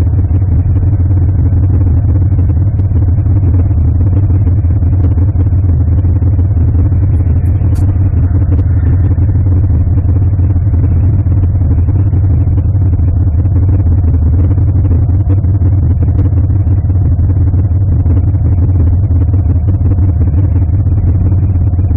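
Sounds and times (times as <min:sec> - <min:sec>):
car engine running: 0:00.0 - 0:21.9.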